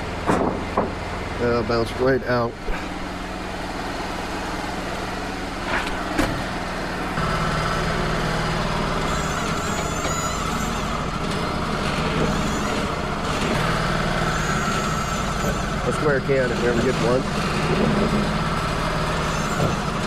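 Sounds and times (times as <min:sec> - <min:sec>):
sawmill engine running: 0:00.0 - 0:20.0
steady whine: 0:00.0 - 0:20.0
knocks: 0:00.2 - 0:01.0.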